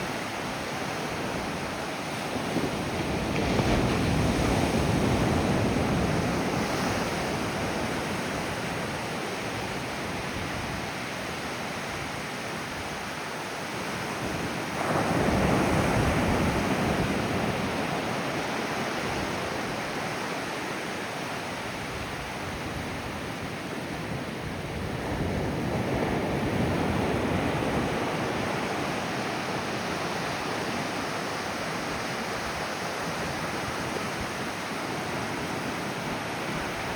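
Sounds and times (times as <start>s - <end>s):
ocean waves breaking: 0.0s - 36.9s.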